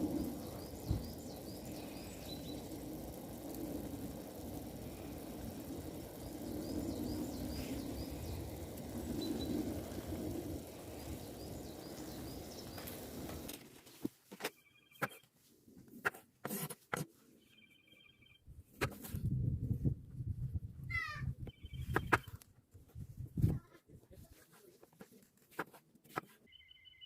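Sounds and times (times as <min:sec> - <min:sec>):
small birds chirping: 0:00.0 - 0:13.6, 0:21.4 - 0:22.4
steady rushing noise: 0:00.0 - 0:13.6.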